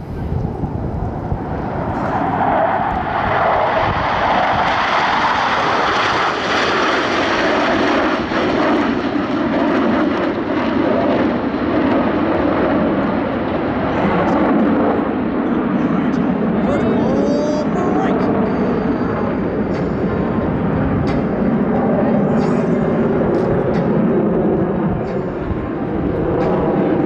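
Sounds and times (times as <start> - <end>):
jets flying past: 0.0 - 27.0.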